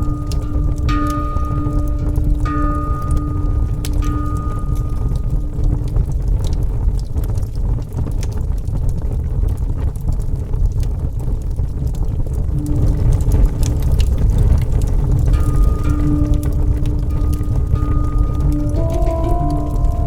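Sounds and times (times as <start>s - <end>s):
soft held musical tone: 0.0s - 7.3s, 12.4s - 20.0s
fire crackles: 0.0s - 20.0s
wood fire rumbling: 0.0s - 20.0s.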